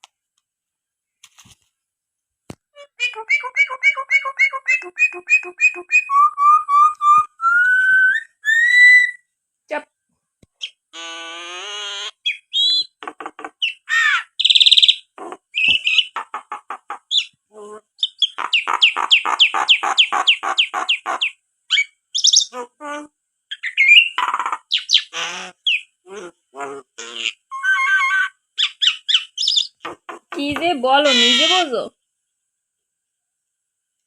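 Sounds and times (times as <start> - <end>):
myna chattering and whistling: 2.8 - 9.2, 11.5 - 17.4, 18.0 - 22.7, 23.5 - 31.9.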